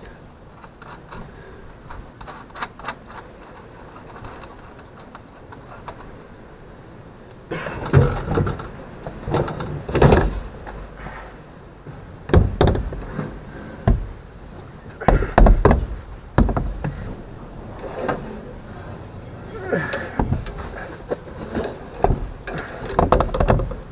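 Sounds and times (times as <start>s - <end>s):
irregular clunks and knocks: 7.5s - 11.2s, 11.8s - 23.9s.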